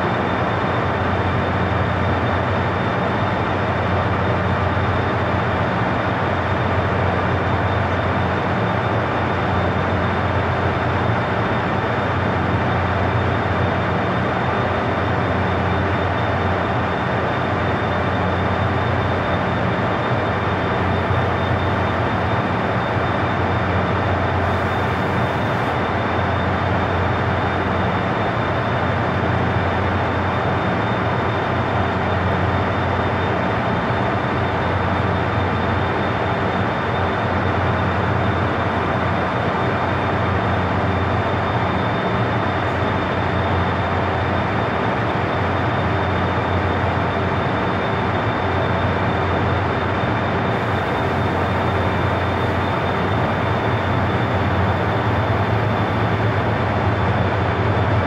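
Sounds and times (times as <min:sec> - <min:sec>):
train equipment hum: 0:00.0 - 0:58.0
high whine: 0:30.7 - 0:58.0.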